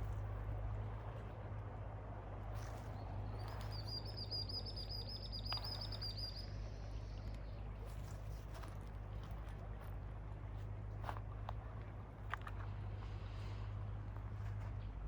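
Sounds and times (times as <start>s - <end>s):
bird singing a high trill: 3.3s - 7.2s.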